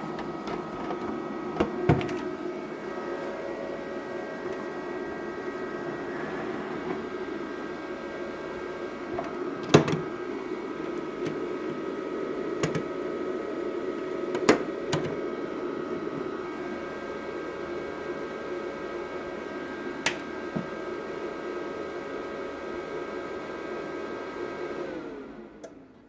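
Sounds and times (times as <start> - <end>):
welding machine humming: 0.0 - 18.1.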